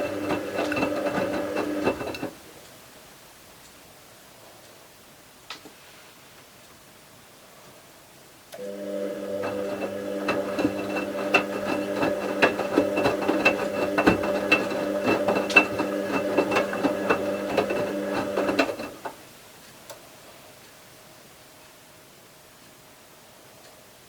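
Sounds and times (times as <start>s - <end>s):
irregular clicks and knocks: 0.0s - 2.4s, 9.4s - 19.2s
washing machine motor hum: 0.0s - 2.4s, 8.6s - 19.2s.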